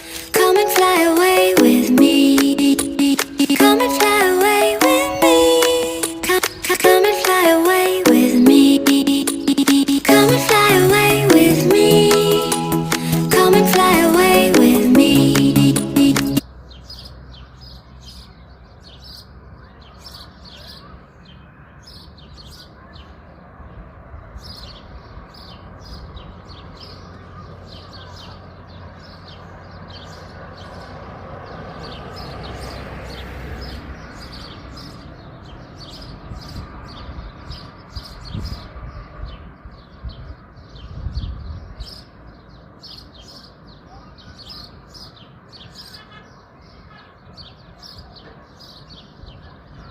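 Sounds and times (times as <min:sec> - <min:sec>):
small birds chirping: 0:24.4 - 0:49.9.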